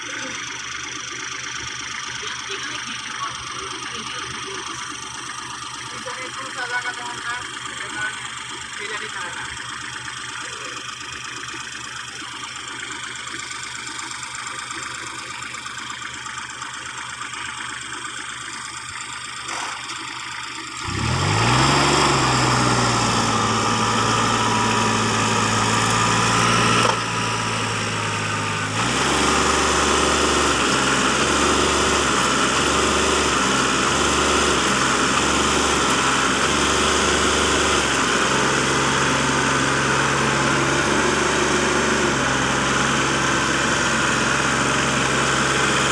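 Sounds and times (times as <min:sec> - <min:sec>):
heavy machine engine running: 0:00.0 - 0:45.9
engine revving: 0:20.7 - 0:45.9.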